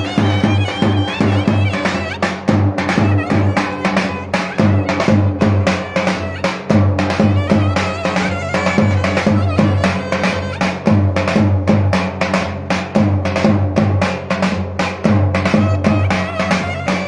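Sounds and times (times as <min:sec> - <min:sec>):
clarinet melody: 0:00.0 - 0:10.8, 0:15.6 - 0:17.0
fast drumbeats: 0:00.0 - 0:17.0.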